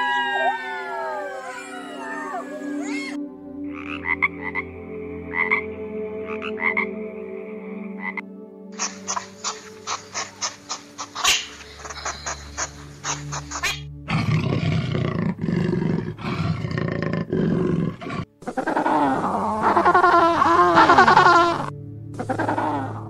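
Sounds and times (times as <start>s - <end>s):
jaguar growling: 8.8s - 23.0s.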